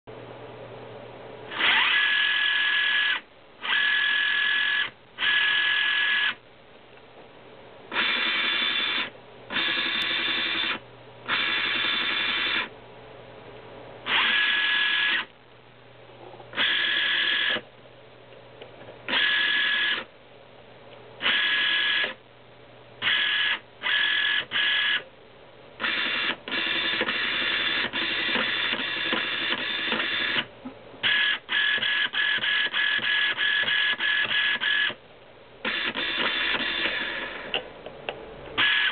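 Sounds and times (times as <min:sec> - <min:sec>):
small electric motor whining: 0:01.5 - 0:06.4, 0:08.0 - 0:12.7, 0:14.1 - 0:15.3, 0:16.6 - 0:17.6, 0:19.1 - 0:20.1, 0:21.2 - 0:22.2, 0:23.0 - 0:25.0, 0:25.8 - 0:30.5, 0:31.1 - 0:35.0, 0:35.7 - 0:37.6, 0:38.6 - 0:38.9.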